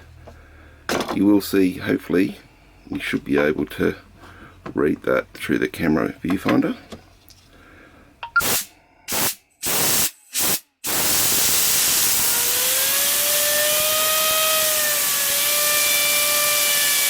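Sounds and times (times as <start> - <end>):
compressed air blow gun hissing: 8.4 - 13.5.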